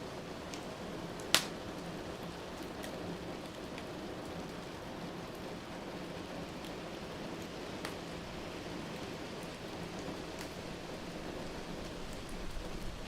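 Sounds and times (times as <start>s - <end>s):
faint fire crackles: 0.0s - 13.0s
steady rain hiss: 0.0s - 13.0s
loud sharp fire pop: 1.3s - 1.6s.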